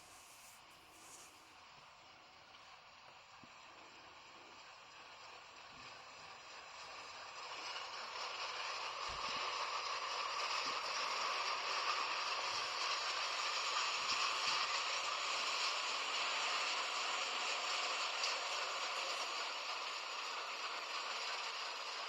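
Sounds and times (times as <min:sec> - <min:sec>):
train rattling on rails: 0:07.3 - 0:22.0.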